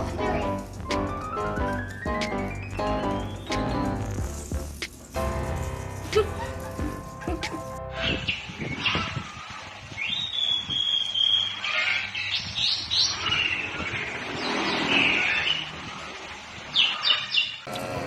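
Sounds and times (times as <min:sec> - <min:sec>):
parrot whistling and chirping: 0:01.3 - 0:03.9, 0:10.0 - 0:11.8.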